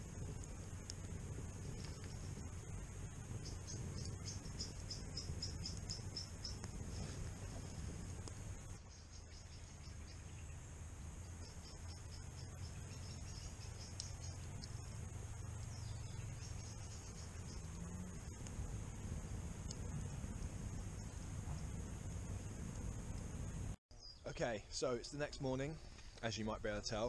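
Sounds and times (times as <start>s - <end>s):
low steady rumble: 0.0s - 23.8s
small bird chirping: 0.2s - 19.1s, 23.9s - 24.3s.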